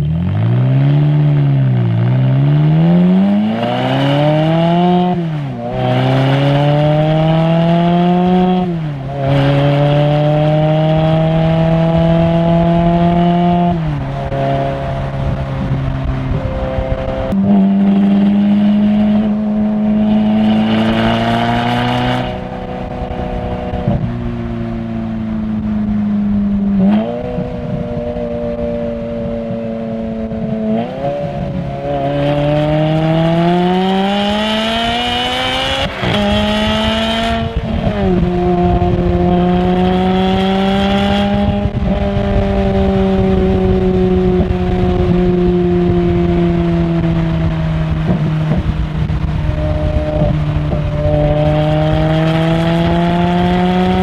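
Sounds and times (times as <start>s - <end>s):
sports car engine revving: 0.0s - 54.0s.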